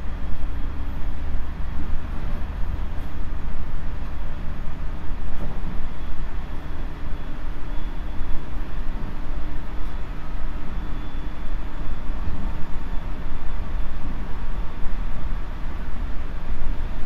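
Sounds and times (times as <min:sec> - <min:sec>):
wheels rumbling on rail: 0:00.0 - 0:17.0
faint steady tone: 0:05.1 - 0:17.0.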